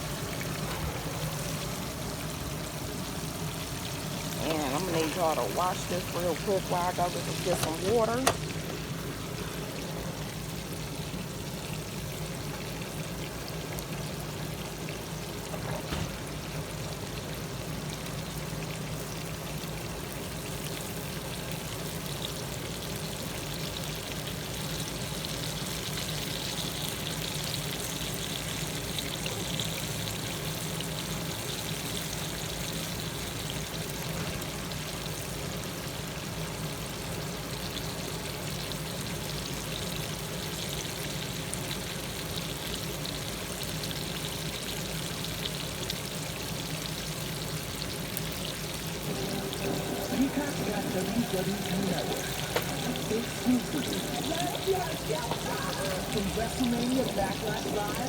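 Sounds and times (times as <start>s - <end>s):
fish fillets sizzling in a pan: 16.2s - 58.0s.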